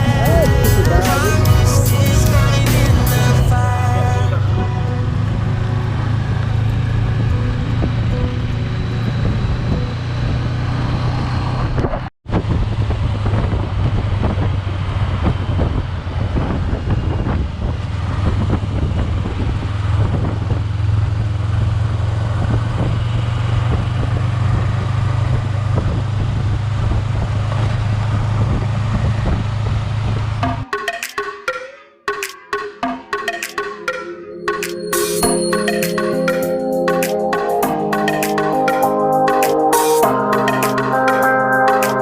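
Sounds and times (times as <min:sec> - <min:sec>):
car engine drone: 0:00.0 - 0:30.6
tyre and road noise: 0:00.0 - 0:30.6.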